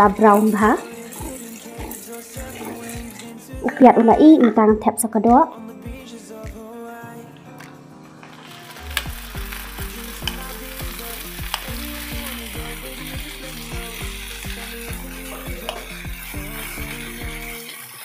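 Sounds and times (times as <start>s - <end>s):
chicken sizzling in oil: 0.0s - 3.5s, 8.3s - 18.0s
soft background music: 0.0s - 18.0s.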